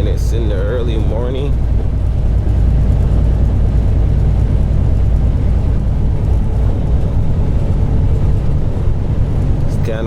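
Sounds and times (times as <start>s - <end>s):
truck engine and road rumble: 0.0s - 10.0s.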